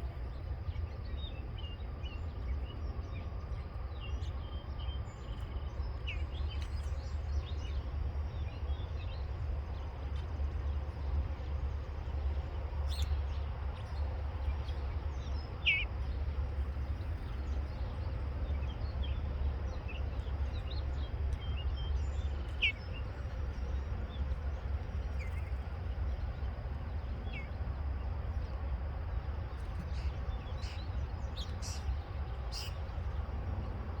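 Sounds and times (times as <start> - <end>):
steady low rumble: 0.0 - 34.0
bird chirps: 29.9 - 32.9.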